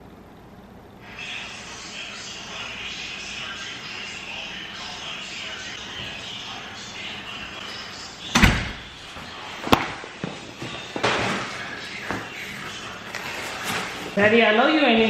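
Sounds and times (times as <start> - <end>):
door slamming shut: 8.3 - 8.9.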